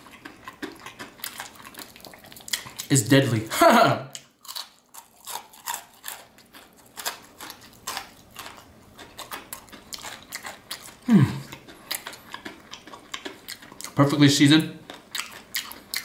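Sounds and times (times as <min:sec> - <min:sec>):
crispy chicken crunching: 0:00.0 - 0:03.5, 0:04.1 - 0:16.0
voiced mm: 0:11.0 - 0:11.6.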